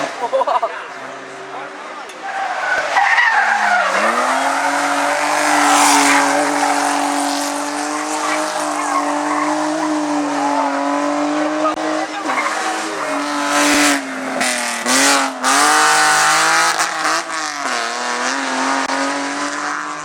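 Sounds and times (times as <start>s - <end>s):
race car engine at high revs: 0.0s - 20.0s
tyre squeal and skid: 2.1s - 14.0s.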